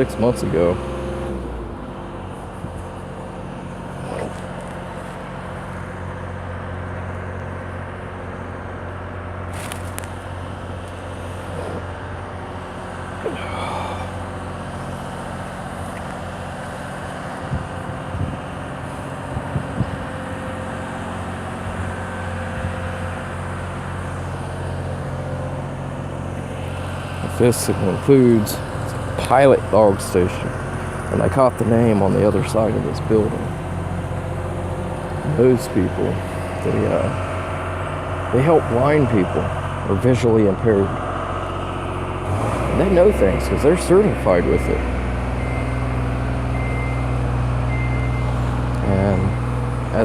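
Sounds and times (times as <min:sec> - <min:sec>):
engine humming: 0:00.0 - 0:50.0.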